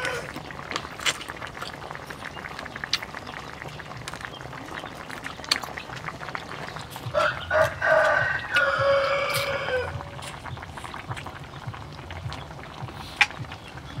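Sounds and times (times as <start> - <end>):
rooster crowing: 0.0 - 0.3, 7.1 - 10.2
man chewing with wet smacks: 0.0 - 9.5, 10.1 - 14.0.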